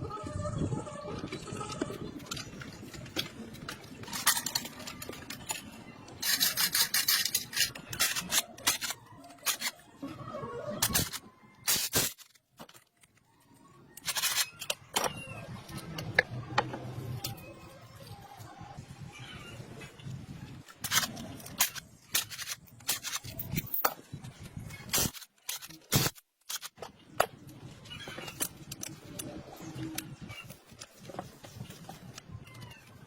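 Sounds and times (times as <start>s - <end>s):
scraping and rubbing: 1.2s - 12.9s.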